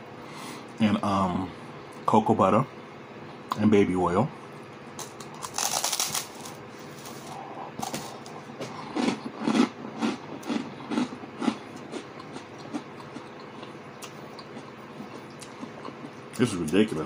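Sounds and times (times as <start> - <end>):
steady hum: 0.0 - 17.0
person chewing toast: 5.1 - 16.3.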